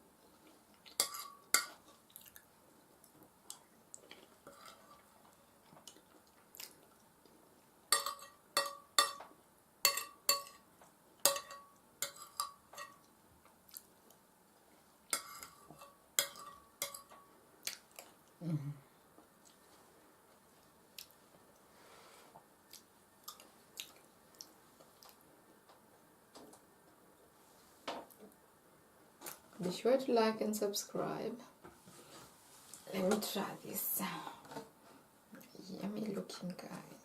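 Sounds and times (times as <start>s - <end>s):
soft chewing: 0.2s - 7.7s, 12.9s - 18.4s, 19.2s - 21.7s, 22.4s - 25.4s
cutlery clinking on a dish: 7.9s - 9.3s, 9.9s - 10.6s, 11.2s - 13.0s, 15.2s - 17.3s.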